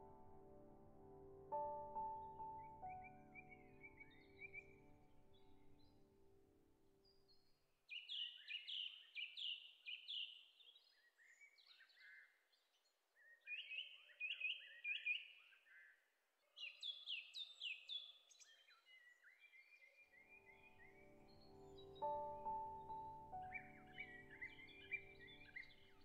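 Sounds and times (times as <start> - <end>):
bird chirping: 1.5 - 6.2, 7.0 - 26.0.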